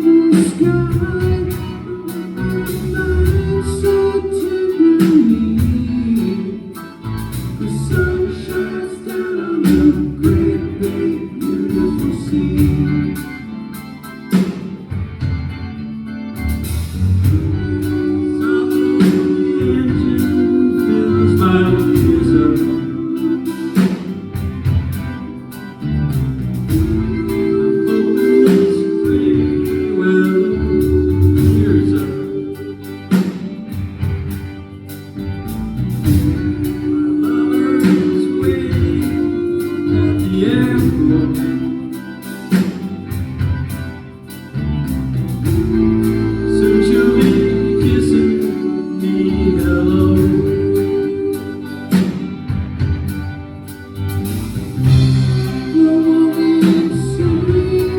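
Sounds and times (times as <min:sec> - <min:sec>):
drums beating: 0:00.0 - 0:04.1, 0:11.8 - 0:15.8, 0:16.4 - 0:18.0, 0:18.8 - 0:48.7, 0:49.5 - 0:55.9
vocal harmony singing: 0:00.0 - 0:15.0, 0:16.6 - 0:53.1, 0:54.2 - 0:57.9
live pop-rock band playing: 0:00.0 - 0:57.9.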